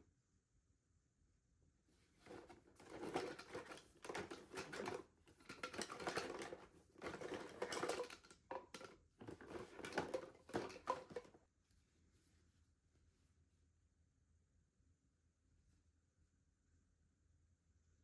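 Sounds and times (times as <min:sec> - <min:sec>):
small things rustling and clicking: 0:02.2 - 0:11.4.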